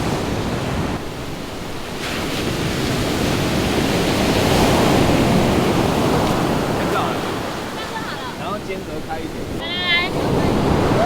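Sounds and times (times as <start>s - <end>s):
ocean surf breaking: 0.0s - 11.0s
wind rumbling on microphone: 0.0s - 11.0s.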